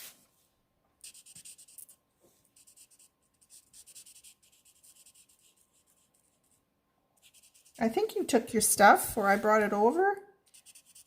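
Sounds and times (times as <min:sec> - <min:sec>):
marker strokes on cardstock: 0:01.0 - 0:02.0, 0:02.6 - 0:06.6, 0:07.2 - 0:08.1, 0:09.1 - 0:11.0.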